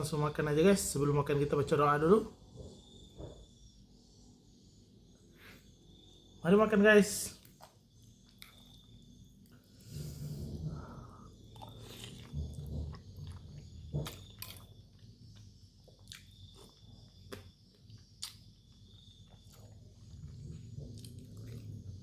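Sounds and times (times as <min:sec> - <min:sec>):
chewing and mouth noises: 0:07.4 - 0:09.6, 0:11.4 - 0:22.0.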